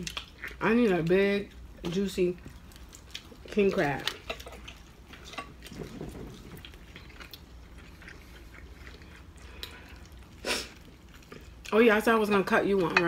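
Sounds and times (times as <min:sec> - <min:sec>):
crab shells cracking: 0:00.0 - 0:00.6
person chewing: 0:00.0 - 0:11.8.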